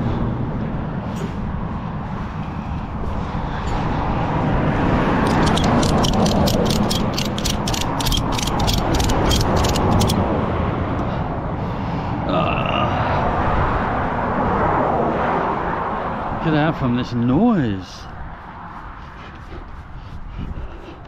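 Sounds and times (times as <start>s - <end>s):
truck engine rumbling: 0.0s - 11.3s
ratchet strap clicking: 5.2s - 10.2s.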